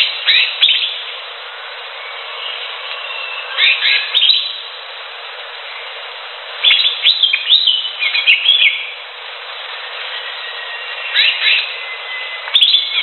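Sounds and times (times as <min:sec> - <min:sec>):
bird singing whistled notes: 0:00.0 - 0:01.1, 0:02.0 - 0:04.7, 0:06.6 - 0:09.0, 0:09.7 - 0:13.0
background hiss: 0:00.0 - 0:13.0.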